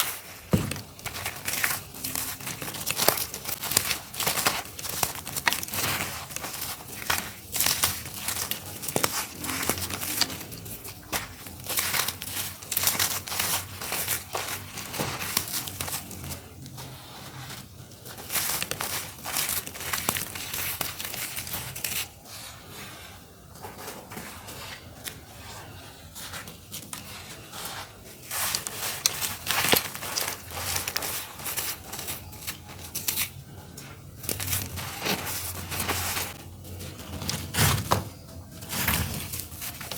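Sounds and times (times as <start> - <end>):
dirt clumps crumbling: 0.0 - 16.5, 28.2 - 32.9.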